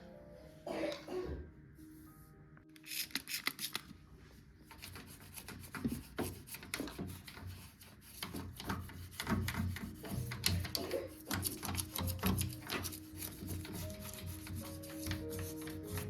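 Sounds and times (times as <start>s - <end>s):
rubbing and scraping strokes: 4.7s - 16.0s.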